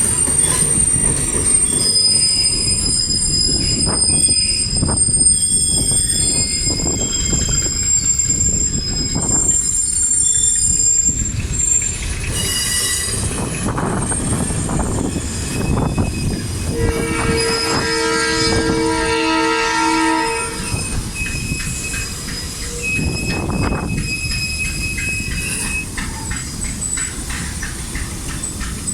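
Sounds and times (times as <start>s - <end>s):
steel wheels squealing: 0.0s - 28.9s
train rumbling: 0.0s - 28.9s
train horn: 16.7s - 20.8s.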